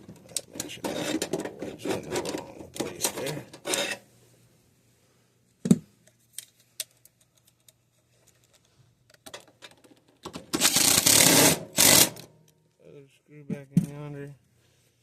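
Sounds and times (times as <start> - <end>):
tools clicking and knocking: 0.0 - 4.0, 5.7 - 12.6.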